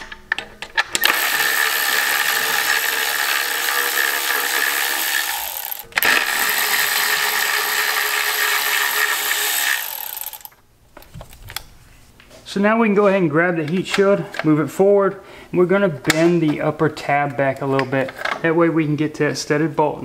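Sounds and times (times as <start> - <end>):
ratchet clicks: 0.9 - 10.6
electric ratchet motor spinning: 1.0 - 10.6.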